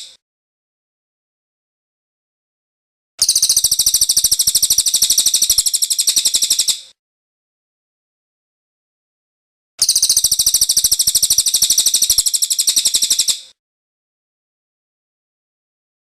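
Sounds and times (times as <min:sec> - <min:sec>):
bird trilling: 0:03.2 - 0:06.8, 0:09.8 - 0:13.5.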